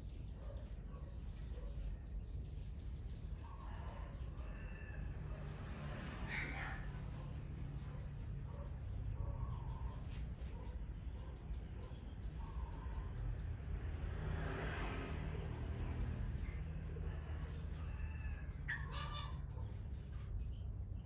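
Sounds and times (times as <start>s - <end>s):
birds chirping: 18.0s - 21.0s.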